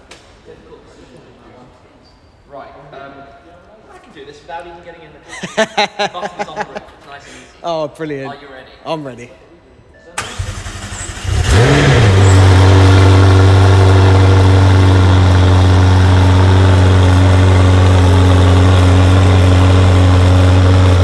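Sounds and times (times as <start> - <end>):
car engine starting and idling: 10.2 - 21.0.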